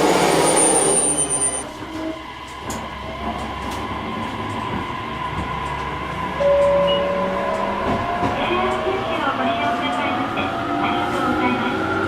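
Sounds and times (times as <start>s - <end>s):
railcar rumbling on rails: 0.0s - 12.0s
loud high steady tone: 6.4s - 8.2s.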